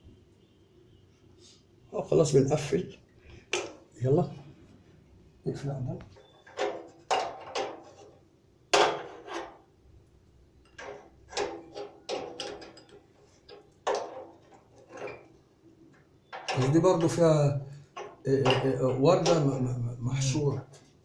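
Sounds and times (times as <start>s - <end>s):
hand tools clinking on metal: 10.7s - 15.3s, 16.3s - 17.2s, 18.0s - 19.7s.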